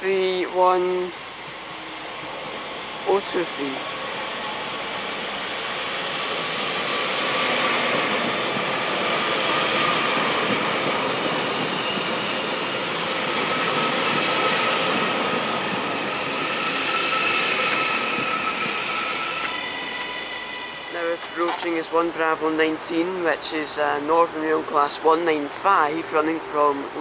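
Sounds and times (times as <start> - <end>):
train wheels rumbling: 1.3 - 22.8.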